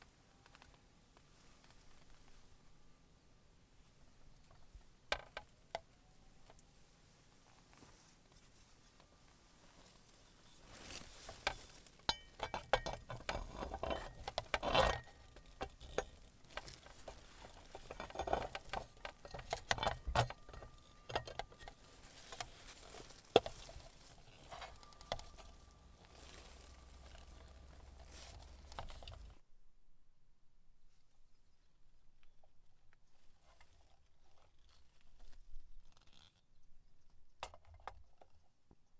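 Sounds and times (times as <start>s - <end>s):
cookware clicks and rustling: 11.3s - 25.7s.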